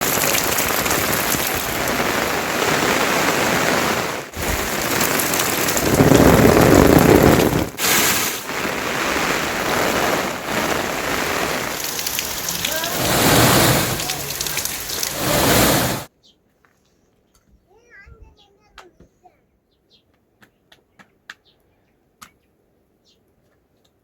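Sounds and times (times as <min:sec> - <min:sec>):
heavy rain hissing: 0:00.0 - 0:16.1.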